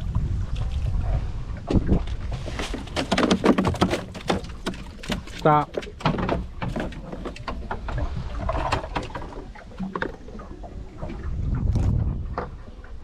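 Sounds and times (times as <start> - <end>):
low rumble: 0.0 - 2.6, 7.7 - 13.0
fishing gear clicks and knocks: 2.0 - 10.2.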